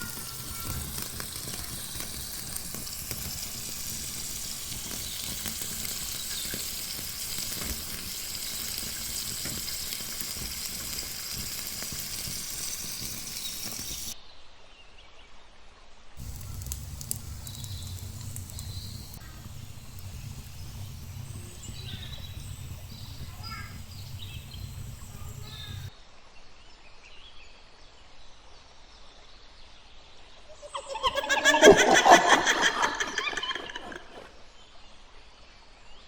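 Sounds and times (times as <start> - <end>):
faint chirps: 0.0 - 14.2, 16.2 - 25.9, 30.5 - 34.2
hot oil sizzling: 0.0 - 14.2, 16.2 - 25.9, 30.5 - 34.2
low hum: 16.2 - 25.9.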